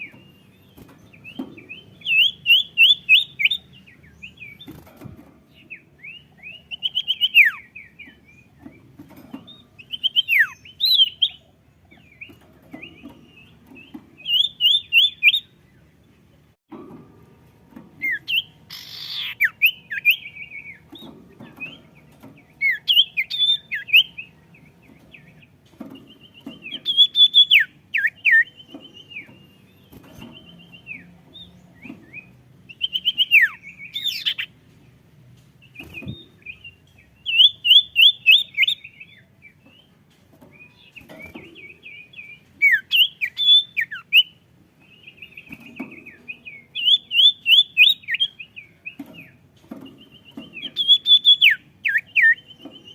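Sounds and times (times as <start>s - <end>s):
songbird chirping: 0.0s - 52.9s.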